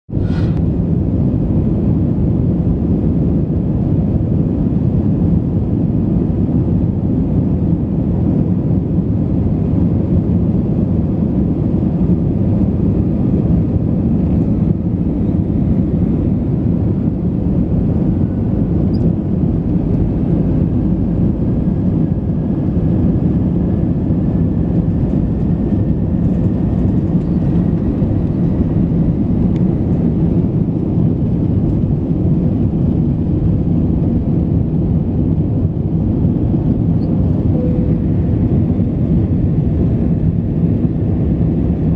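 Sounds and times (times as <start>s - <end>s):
jet engine cabin rumble: 0.1s - 41.9s
faint rising tone: 37.5s - 38.4s.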